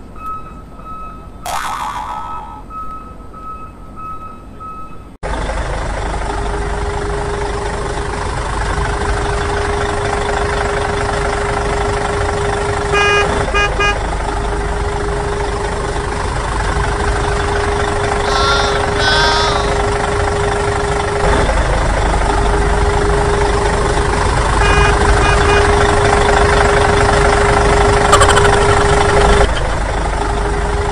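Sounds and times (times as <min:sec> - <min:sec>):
toy electronic engine sound: 0:01.4 - 0:02.7, 0:18.2 - 0:20.0
warbling electronic tone: 0:01.4 - 0:02.8, 0:28.1 - 0:29.6.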